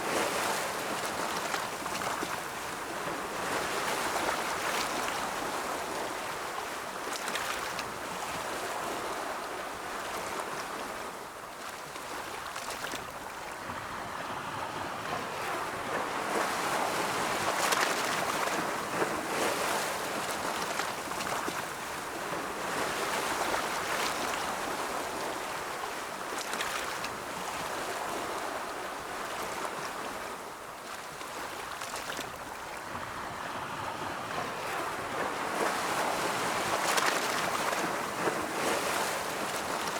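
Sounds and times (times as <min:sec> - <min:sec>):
ocean waves breaking: 0:13.8 - 0:39.9.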